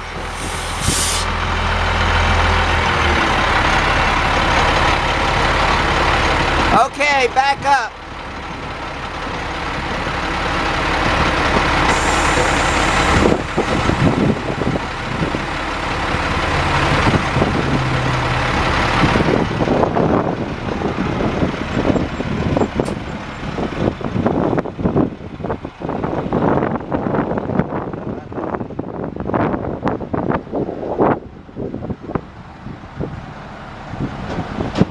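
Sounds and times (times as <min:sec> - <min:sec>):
diesel truck engine under load: 0:00.0 - 0:34.9
short hiss: 0:00.2 - 0:01.4.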